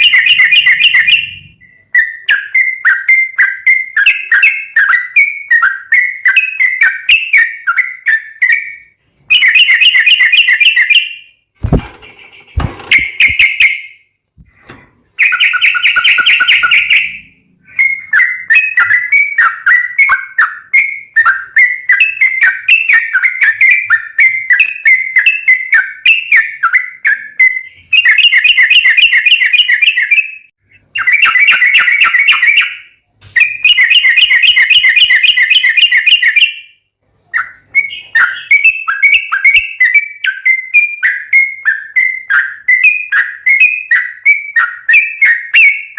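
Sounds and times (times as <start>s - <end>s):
thuds: 11.6s - 13.5s.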